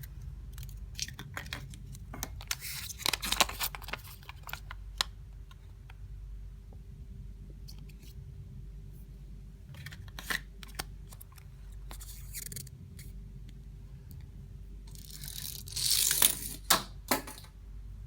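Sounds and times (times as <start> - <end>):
foil wrapper crinkling: 2.4 - 5.1.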